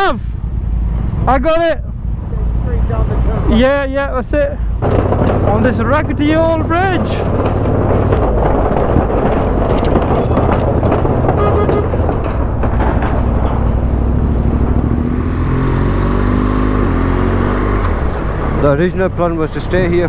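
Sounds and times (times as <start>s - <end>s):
motorcycle engine running: 0.0s - 20.0s
wind and road noise: 0.0s - 20.0s
knocks and rattles: 4.2s - 20.0s.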